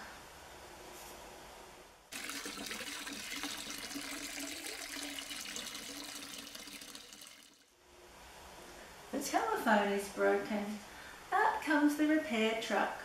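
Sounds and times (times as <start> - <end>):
rushing water: 2.1 - 7.6.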